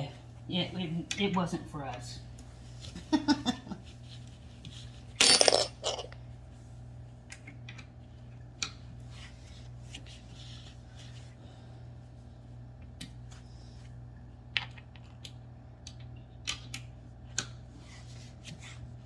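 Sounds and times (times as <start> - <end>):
metal hardware clinking and rattling: 5.2 - 6.2.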